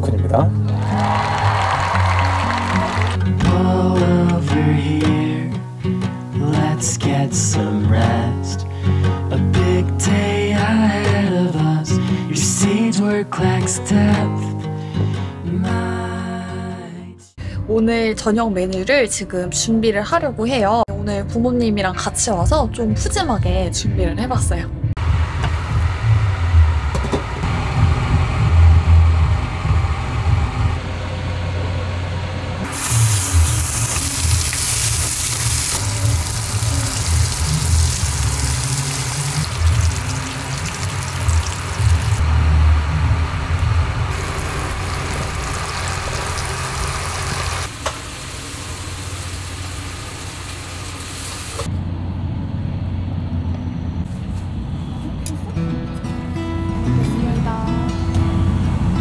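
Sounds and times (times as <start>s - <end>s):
meat sizzling in a frying pan: 32.7s - 42.2s, 44.2s - 51.6s
pot simmering: 32.7s - 42.3s, 43.2s - 51.7s.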